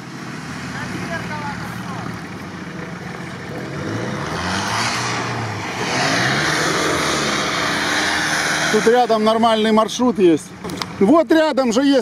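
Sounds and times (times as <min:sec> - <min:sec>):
off-road engines revving: 0:00.0 - 0:11.3
rushing noise: 0:03.8 - 0:09.6.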